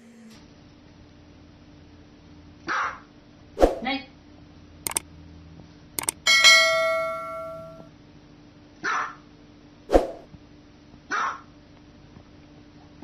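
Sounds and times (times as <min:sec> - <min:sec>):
quick clicks: 0:06.0 - 0:06.2
bell-like chime: 0:06.0 - 0:07.8
dog barking: 0:11.1 - 0:11.4.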